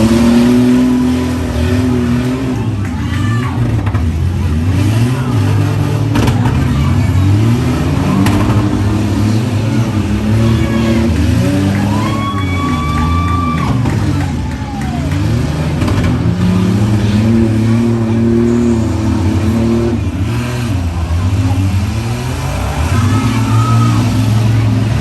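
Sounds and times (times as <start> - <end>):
engines revving: 0.0 - 25.0.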